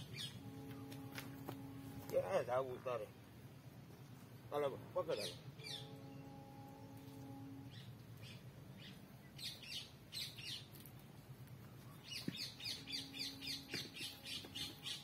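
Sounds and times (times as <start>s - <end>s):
small birds chirping: 0.0s - 1.5s, 3.8s - 15.0s.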